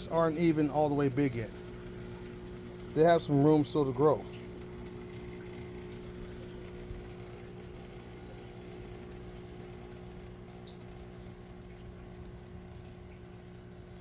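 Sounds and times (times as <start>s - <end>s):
water pump humming: 0.0s - 14.0s
water running: 0.0s - 14.0s.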